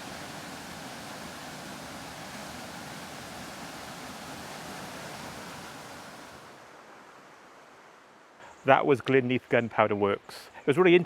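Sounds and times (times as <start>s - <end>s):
river water rushing: 0.0s - 7.5s.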